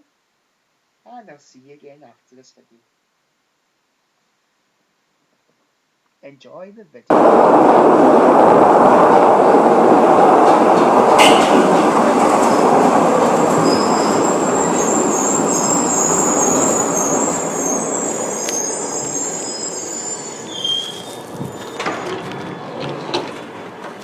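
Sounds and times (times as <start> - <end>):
subway train rumbling: 7.1 - 24.0
wheel squeal: 13.4 - 23.4.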